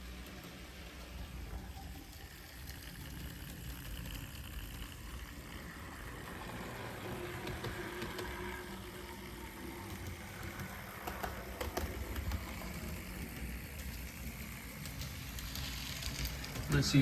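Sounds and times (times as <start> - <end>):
model train motor whirring: 0.0 - 17.0.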